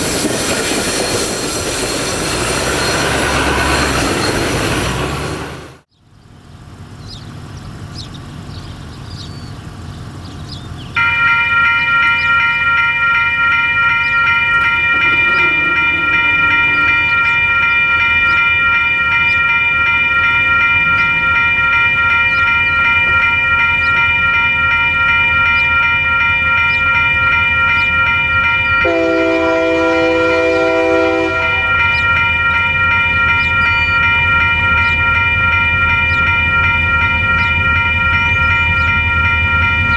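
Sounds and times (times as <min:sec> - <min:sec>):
train rumble: 0:00.0 - 0:39.9
locomotive air horn chord: 0:14.5 - 0:18.7, 0:28.8 - 0:32.0.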